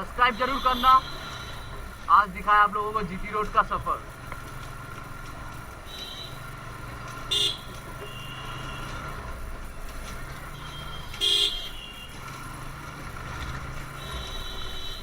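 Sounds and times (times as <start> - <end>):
vehicle horn toots: 0.0 - 2.0, 5.8 - 9.3, 10.4 - 12.4, 13.8 - 15.0
motorcycle engine: 0.0 - 15.0
road noise: 0.0 - 15.0.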